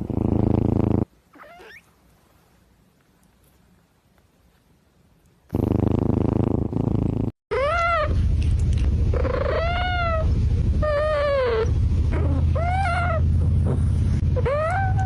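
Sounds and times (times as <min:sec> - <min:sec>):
cat purring: 0:00.0 - 0:01.8, 0:05.5 - 0:07.4, 0:08.1 - 0:15.0.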